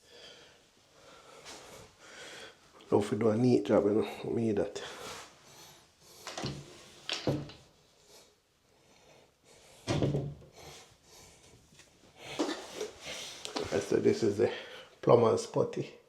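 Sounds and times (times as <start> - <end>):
objects knocking and clunking: 6.3 - 7.7, 9.9 - 10.6.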